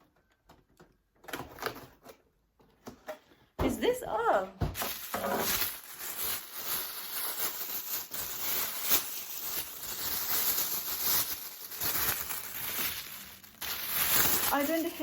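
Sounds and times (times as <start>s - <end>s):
packaging rustling and crinkling: 1.2s - 2.3s, 4.8s - 15.0s.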